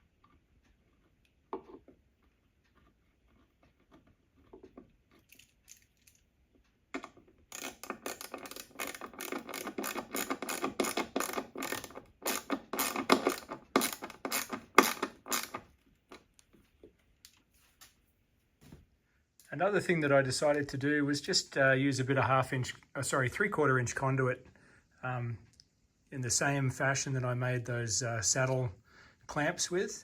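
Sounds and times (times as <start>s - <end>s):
hand tool ratcheting clicks: 7.5s - 15.6s.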